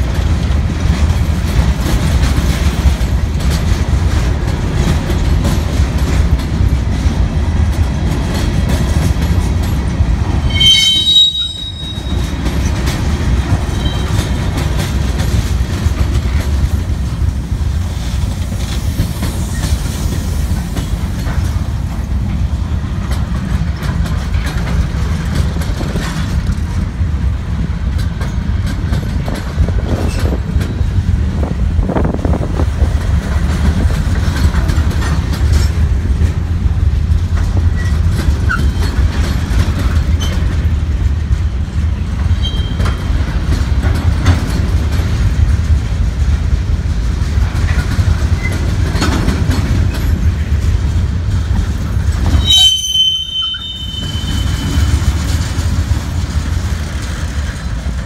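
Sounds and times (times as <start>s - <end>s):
steel wheels rumbling on rail: 0.0s - 58.0s
wheels clicking over rail joints: 0.0s - 58.0s
high-pitched squeal: 10.4s - 12.3s, 52.3s - 55.4s.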